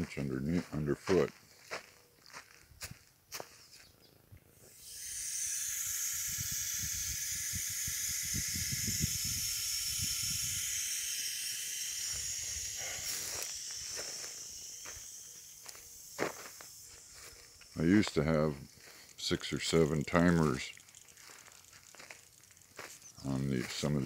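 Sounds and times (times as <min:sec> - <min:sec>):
water spraying from hose: 0:19.0 - 0:23.6.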